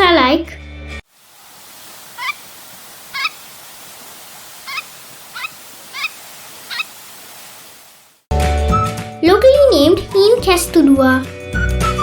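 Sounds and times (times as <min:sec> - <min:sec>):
recording hiss: 0:01.0 - 0:08.3
bird calling harsh notes: 0:02.0 - 0:07.2.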